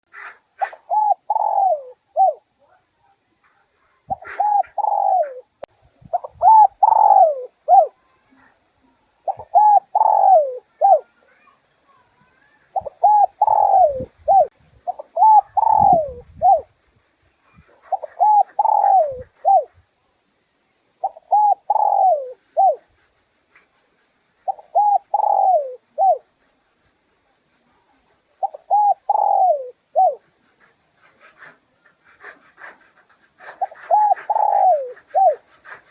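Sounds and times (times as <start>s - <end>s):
dove cooing: 0.2s - 2.5s, 4.1s - 8.0s, 9.2s - 11.1s, 12.7s - 16.7s, 17.6s - 19.8s, 21.0s - 22.9s, 24.4s - 26.3s, 28.4s - 35.9s.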